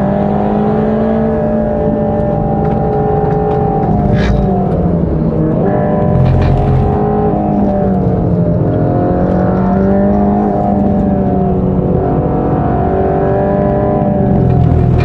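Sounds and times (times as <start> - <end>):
car engine at full throttle: 0.0 - 15.0.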